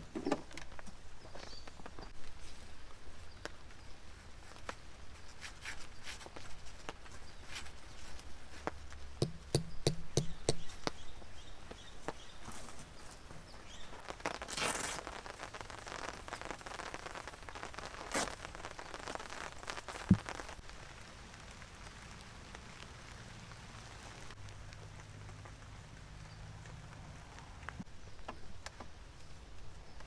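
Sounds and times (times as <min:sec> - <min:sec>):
sharp knock: 0:09.2 - 0:10.7
taps and rustling: 0:09.2 - 0:11.0, 0:20.0 - 0:20.5
rain pattering: 0:13.6 - 0:27.9.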